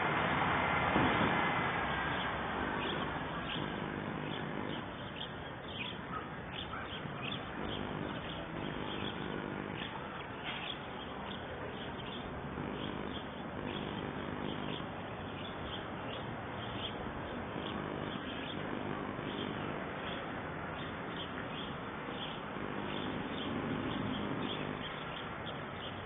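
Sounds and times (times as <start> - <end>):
steady outdoor hiss: 0.0 - 26.0
small birds chirping: 1.0 - 26.0.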